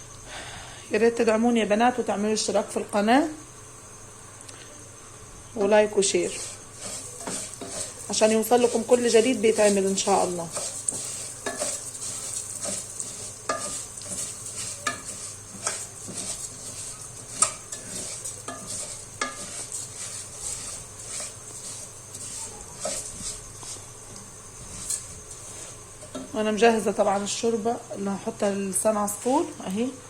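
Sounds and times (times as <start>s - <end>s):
food sizzling in fat: 0.0s - 30.0s
spoon scraping a pot: 6.2s - 26.4s.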